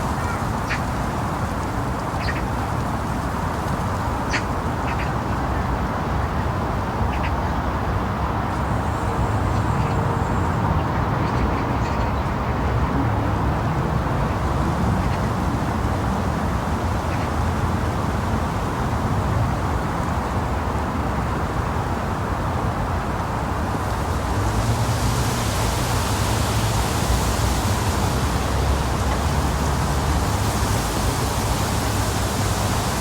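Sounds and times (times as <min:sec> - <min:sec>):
ducks quacking: 0:00.0 - 0:02.8.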